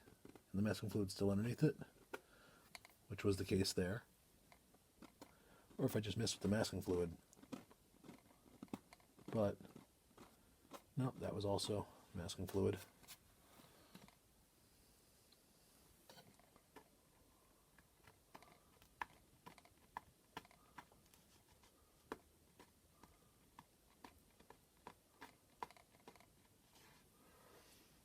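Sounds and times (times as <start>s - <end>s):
fingers picking at dried fluid: 17.8s - 26.6s.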